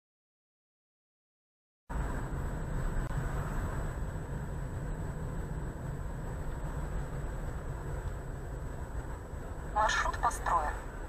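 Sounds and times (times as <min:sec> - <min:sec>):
car engine and road rumble: 0:01.9 - 0:11.0.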